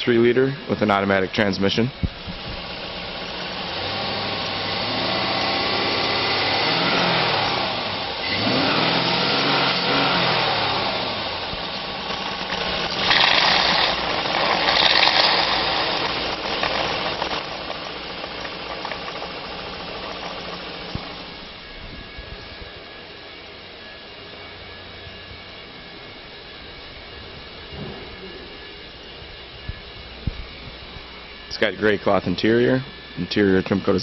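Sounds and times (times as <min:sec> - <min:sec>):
car engine revving: 0:02.4 - 0:21.5.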